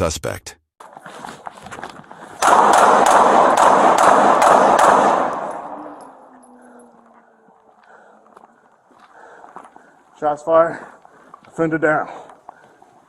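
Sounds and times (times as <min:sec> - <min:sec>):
rapid pistol shots: 0:02.4 - 0:05.8.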